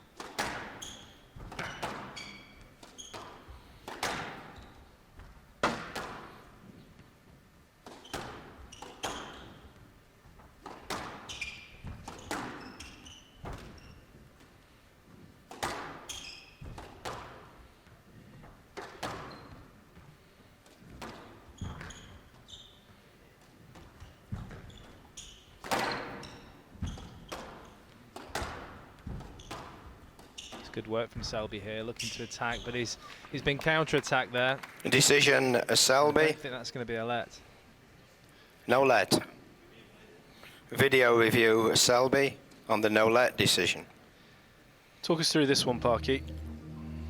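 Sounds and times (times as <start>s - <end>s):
squash ball hitting rackets and walls: 0.1s - 6.5s, 7.8s - 9.6s, 10.4s - 13.8s, 15.5s - 17.5s, 18.7s - 19.7s, 20.8s - 22.0s, 23.7s - 31.4s
shoes squeaking on court floor: 0.3s - 4.9s, 7.9s - 9.8s, 10.6s - 14.2s, 16.1s - 16.8s, 19.0s - 19.7s, 21.1s - 23.0s, 23.8s - 27.8s, 29.2s - 30.8s.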